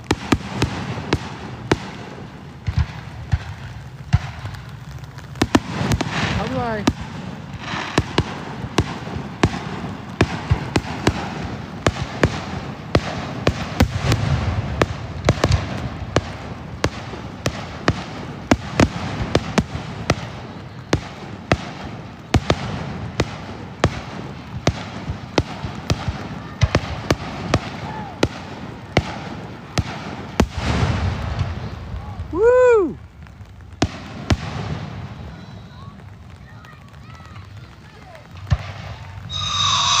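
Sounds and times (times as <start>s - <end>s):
fireworks booming: 0.0s - 40.0s
rain tapping on car roof: 2.3s - 7.6s, 32.0s - 39.2s
person whooping: 32.3s - 33.0s.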